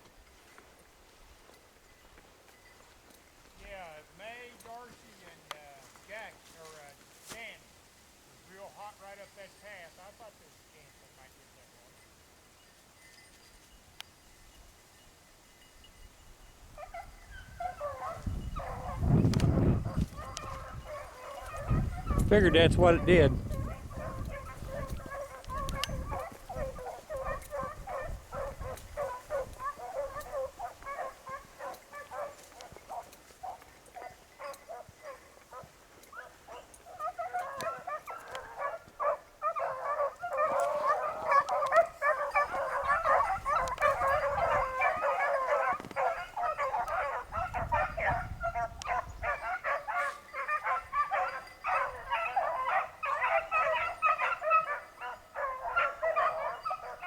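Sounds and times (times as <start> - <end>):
dogs baying and yelping: 16.8 - 57.0.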